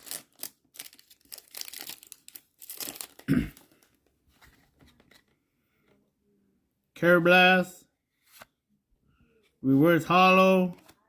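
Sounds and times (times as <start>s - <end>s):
foil wrapper crinkling: 0.0s - 3.9s
cards rustling: 0.0s - 5.4s.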